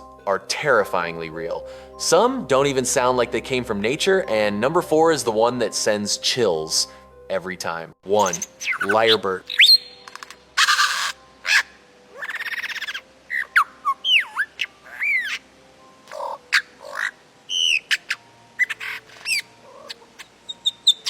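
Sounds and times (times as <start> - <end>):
lyrebird calling: 8.1 - 21.0.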